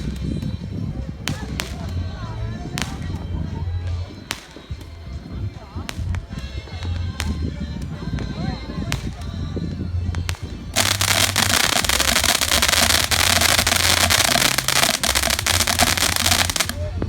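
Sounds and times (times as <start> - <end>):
fireworks popping and crackling: 0.0 - 17.0.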